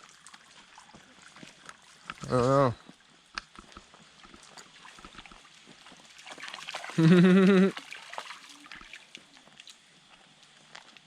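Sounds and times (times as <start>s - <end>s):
stream trickling over rocks: 0.0s - 11.0s
short wavering vocal call: 7.0s - 7.8s.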